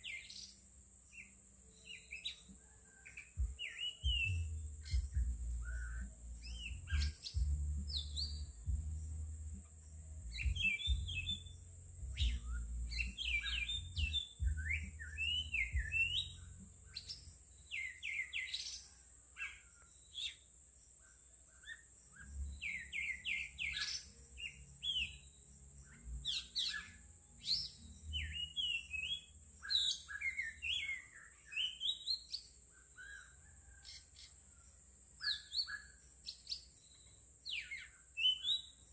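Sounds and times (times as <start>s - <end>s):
steady high-pitched whine: 0.0s - 17.7s
songbirds chirping and singing: 0.0s - 38.9s
low rumble: 3.4s - 16.9s.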